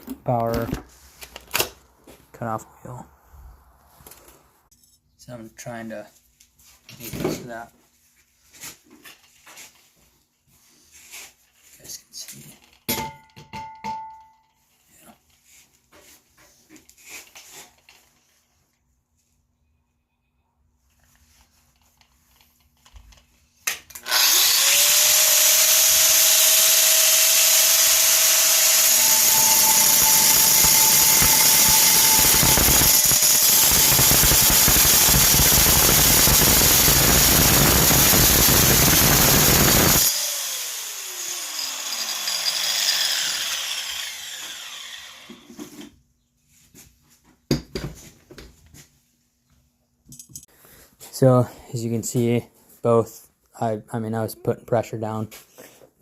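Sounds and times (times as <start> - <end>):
angle grinder cutting: 23.9 - 45.7
angle grinder whine: 24.0 - 45.6.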